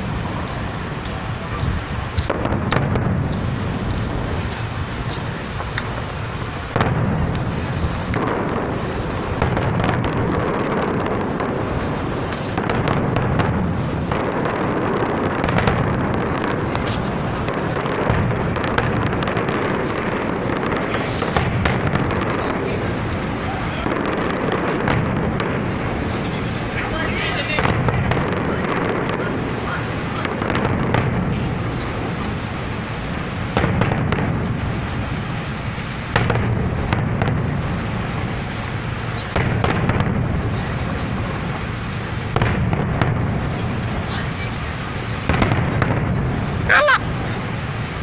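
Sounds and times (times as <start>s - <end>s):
low rumble: 0.0s - 23.8s
fireworks booming and crackling: 0.0s - 48.0s.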